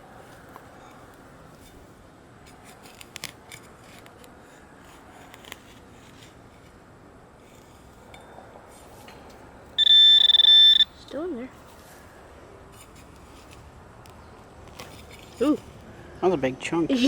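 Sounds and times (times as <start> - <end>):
digging tool scraping soil: 2.5 - 6.8.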